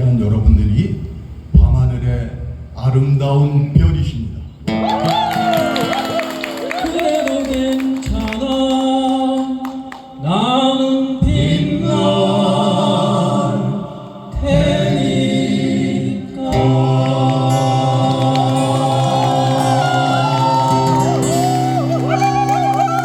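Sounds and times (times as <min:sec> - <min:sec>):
male vocal group singing harmony: 0:06.9 - 0:23.0.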